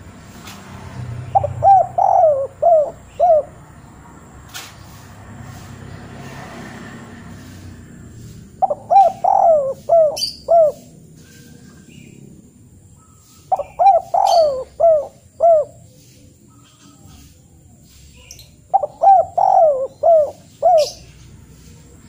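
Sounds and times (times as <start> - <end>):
bird calling: 1.2 - 3.6, 8.2 - 12.3, 12.9 - 22.0.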